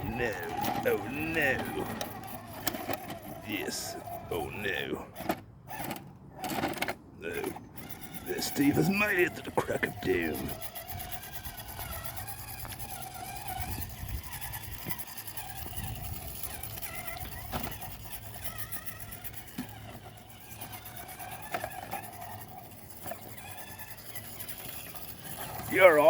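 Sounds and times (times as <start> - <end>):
electric motor whining: 0.0 - 26.0.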